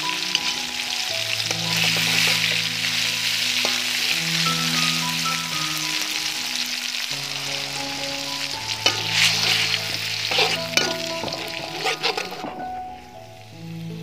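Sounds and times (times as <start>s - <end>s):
chilies sizzling in hot oil: 0.0s - 14.0s
metal spatula scraping a wok: 1.4s - 2.6s, 8.7s - 12.8s.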